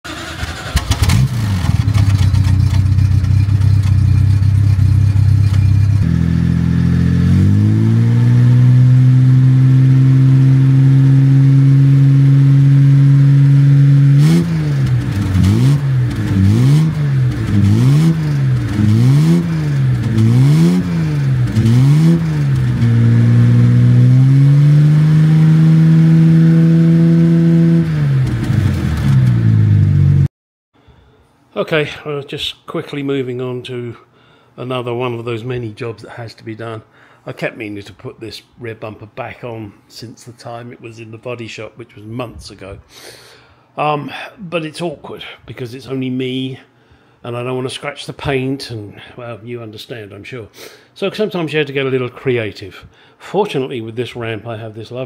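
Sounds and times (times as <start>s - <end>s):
car engine revving: 0.1s - 30.3s.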